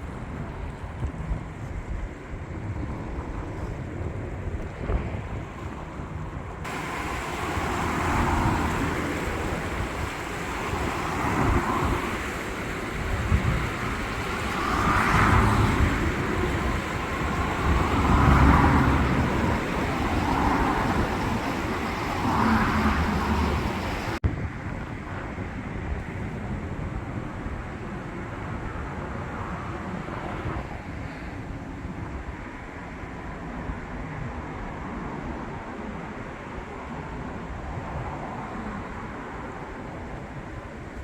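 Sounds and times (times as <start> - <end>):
low traffic rumble: 0.0 - 41.0
vehicles passing: 4.8 - 26.2.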